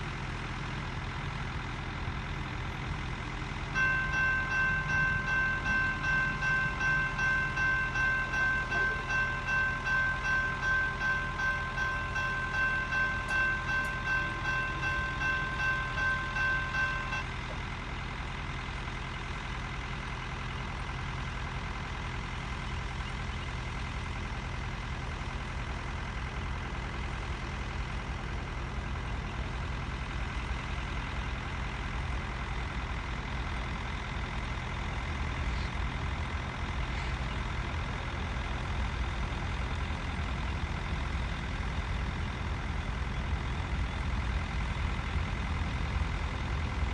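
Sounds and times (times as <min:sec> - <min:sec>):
low vehicle rumble: 0:00.0 - 0:46.9
railroad crossing bell ringing: 0:03.3 - 0:35.0.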